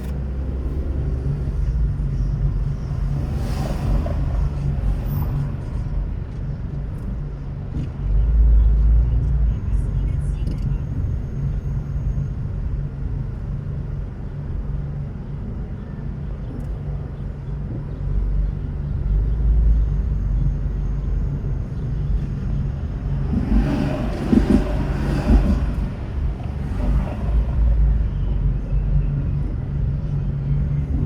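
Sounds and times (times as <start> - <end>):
car engine and road noise: 0.0 - 31.0
rushing noise with rough growl: 22.1 - 28.1.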